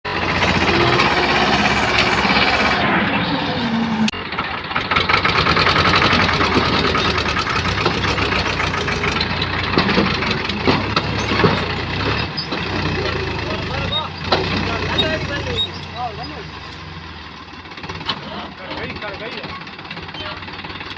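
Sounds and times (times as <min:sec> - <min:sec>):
diesel tractor engine running: 0:00.0 - 0:20.9.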